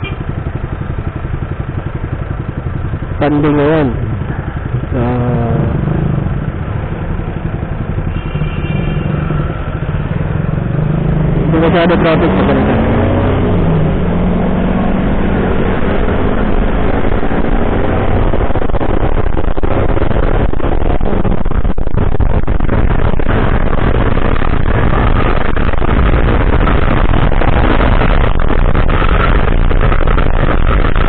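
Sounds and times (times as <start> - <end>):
road noise: 0.0 - 31.0
scooter engine running: 0.0 - 31.0
wind rush: 12.2 - 31.0.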